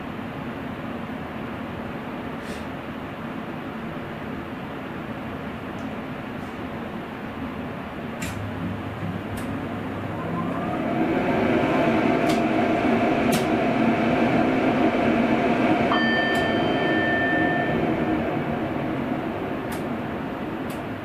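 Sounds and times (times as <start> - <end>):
electric train rumble and motor hum: 0.0 - 21.0
high thin tone: 15.9 - 19.2.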